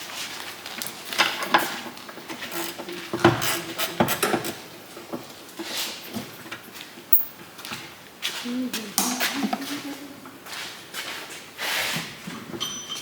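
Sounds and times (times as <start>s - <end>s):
spanner and metal parts clinking: 7.1s - 7.4s.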